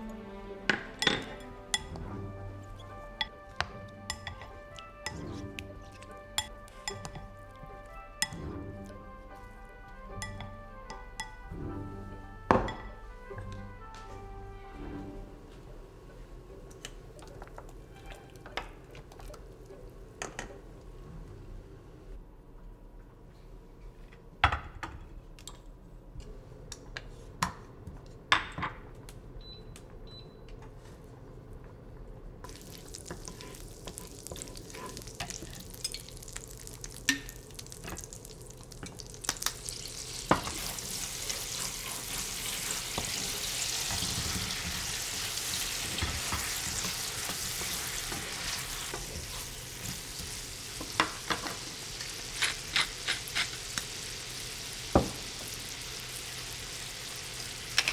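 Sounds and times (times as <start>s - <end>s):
food sizzling in hot oil: 32.5s - 57.9s.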